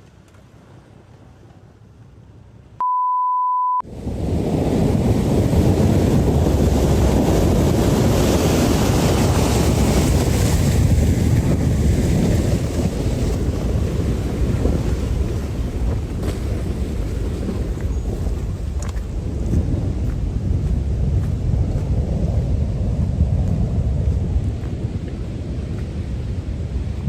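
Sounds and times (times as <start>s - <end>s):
steady beep: 2.8s - 3.8s
waves crashing: 3.8s - 27.0s
wind buffeting microphone: 3.9s - 27.0s.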